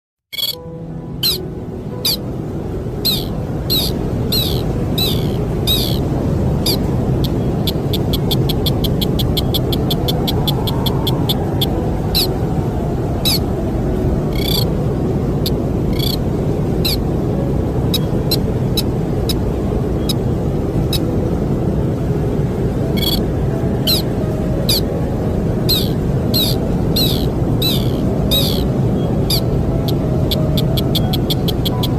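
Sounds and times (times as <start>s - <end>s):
bird calling in sharp high notes: 0.3s - 0.6s, 1.2s - 1.4s, 2.0s - 2.2s, 3.0s - 6.0s, 6.7s - 12.3s, 13.2s - 13.4s, 14.3s - 14.7s, 15.9s - 16.2s, 23.0s - 23.2s, 23.9s - 24.1s, 25.7s - 28.7s
rapid ticking bird notes: 0.3s - 0.6s, 3.0s - 12.3s, 13.2s - 13.4s, 14.3s - 14.7s, 15.9s - 16.2s, 23.0s - 23.2s, 23.9s - 24.1s, 25.7s - 31.9s
low wind rumble: 0.3s - 31.9s.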